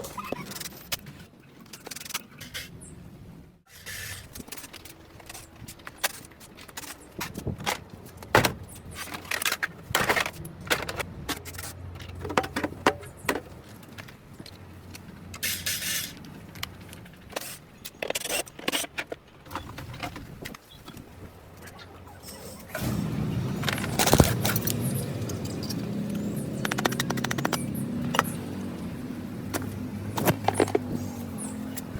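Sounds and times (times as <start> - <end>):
metal tools clinking: 23.6 - 28.4.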